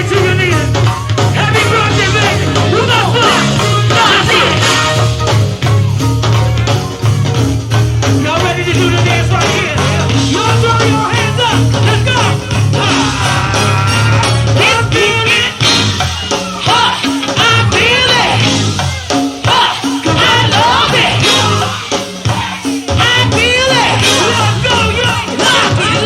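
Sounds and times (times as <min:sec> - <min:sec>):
driving percussion: 0:00.0 - 0:26.0
heavy bass line: 0:00.0 - 0:26.0
person singing: 0:08.2 - 0:26.0.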